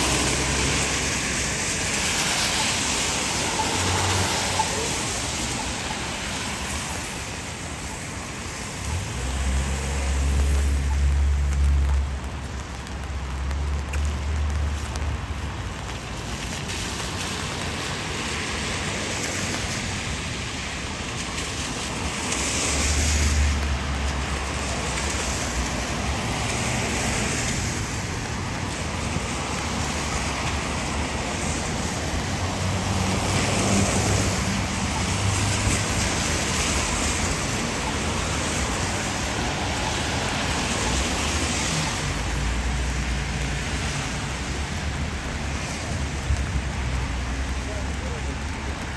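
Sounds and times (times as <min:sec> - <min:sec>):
tyres hissing on wet pavement: 0:00.0 - 0:48.9
low engine rumble: 0:08.8 - 0:16.4.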